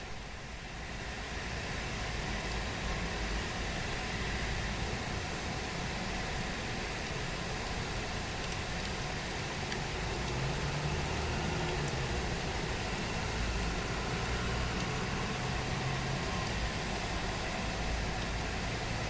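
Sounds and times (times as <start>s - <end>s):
low engine hum: 0.0s - 19.0s
heavy rain hissing: 6.4s - 19.0s.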